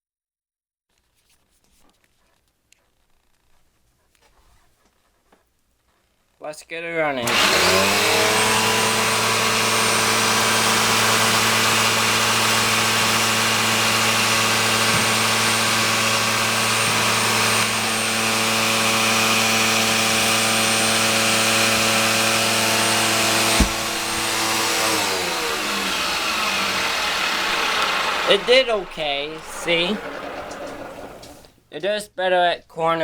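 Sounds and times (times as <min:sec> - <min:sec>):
vacuum cleaner motor running: 0:07.2 - 0:31.5.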